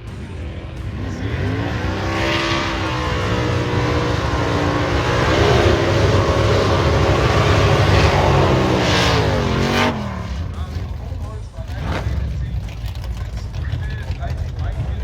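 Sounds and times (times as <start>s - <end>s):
heavy low rumble: 0.0s - 15.0s
race car engine running hard: 0.0s - 15.0s.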